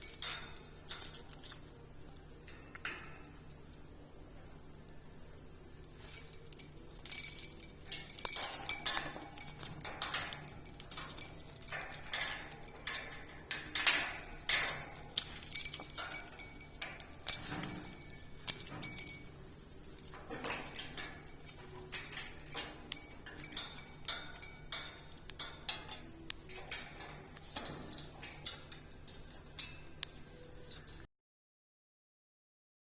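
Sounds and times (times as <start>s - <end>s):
metallic clinking: 0.0s - 1.7s, 2.4s - 3.6s, 5.9s - 31.0s.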